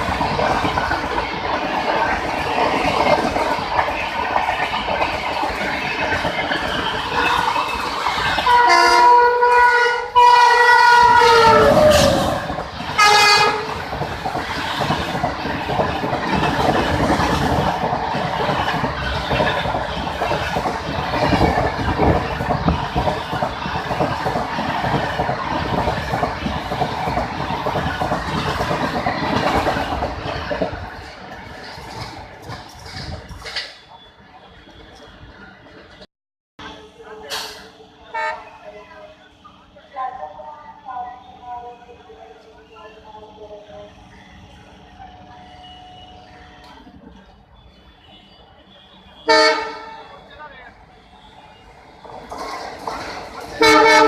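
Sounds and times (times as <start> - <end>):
train rumble and wheel clatter: 0.0 - 54.0
locomotive air horn blasts: 8.5 - 12.0, 13.0 - 13.7, 49.2 - 50.0, 53.6 - 54.0.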